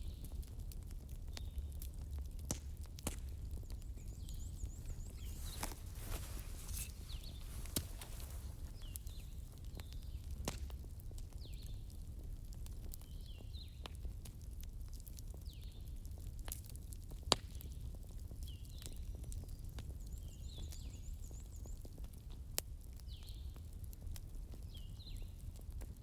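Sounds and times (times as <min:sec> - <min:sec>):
wood fire burning: 0:00.2 - 0:18.4
fire crackling and popping: 0:00.2 - 0:20.0.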